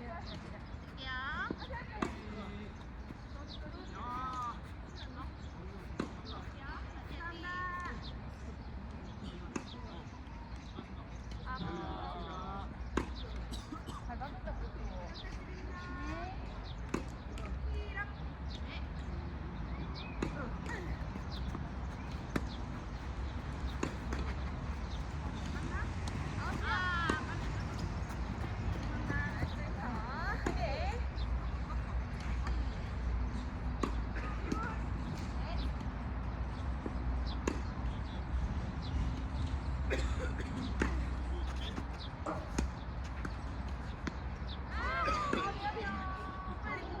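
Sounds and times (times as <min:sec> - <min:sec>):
low court hum: 0:00.0 - 0:47.0
tennis balls struck by racquets: 0:01.6 - 0:07.1, 0:20.0 - 0:31.3, 0:32.1 - 0:35.8
racket hitting tennis ball: 0:20.2 - 0:28.4.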